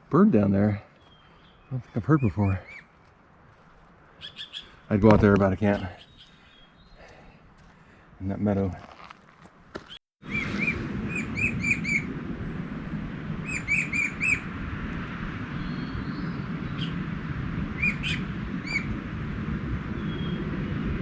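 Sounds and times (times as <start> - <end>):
songbird calling: 0.8 - 3.0, 4.2 - 7.1, 10.2 - 14.6, 15.3 - 19.2, 19.9 - 21.0
steady low background rush: 10.3 - 21.0.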